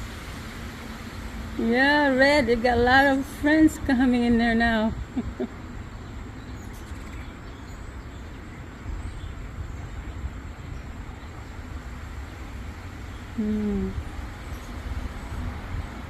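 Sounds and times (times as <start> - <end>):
wind buffeting microphone: 7.4 - 16.0.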